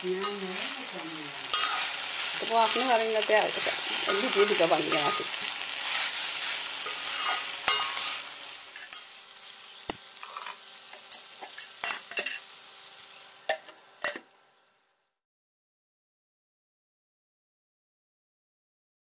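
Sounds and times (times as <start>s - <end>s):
okra sizzling in pan: 0.0s - 15.2s
spatula clinking against metal pan: 7.7s - 8.0s.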